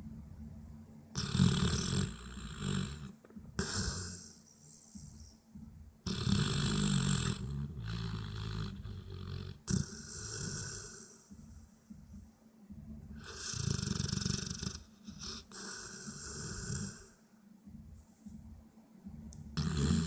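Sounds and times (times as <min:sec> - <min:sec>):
dog snoring: 0:01.2 - 0:05.0, 0:06.0 - 0:11.3, 0:13.2 - 0:17.2, 0:19.6 - 0:20.0.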